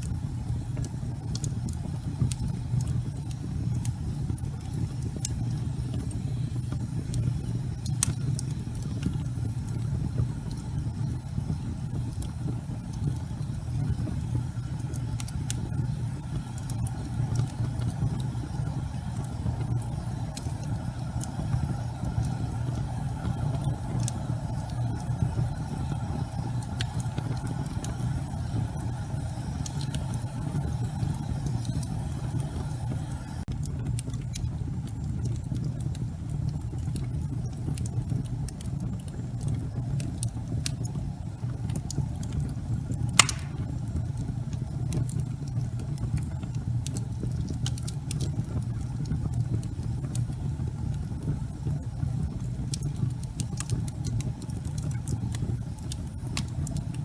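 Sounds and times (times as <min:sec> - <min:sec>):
fire crackling: 0:00.0 - 0:57.0
logs burning in fireplace: 0:00.0 - 0:57.0
loud wood pop: 0:43.2 - 0:43.7.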